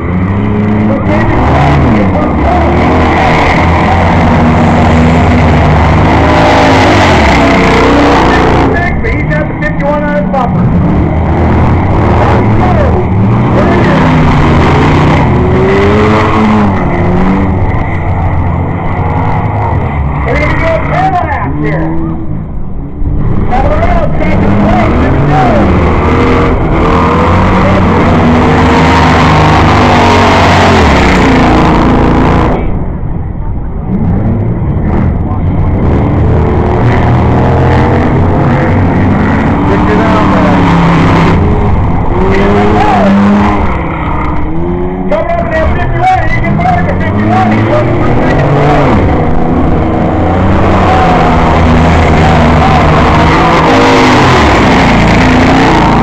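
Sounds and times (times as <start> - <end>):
race car engines revving: 0.0 - 56.0
steady low rumble: 31.2 - 42.3.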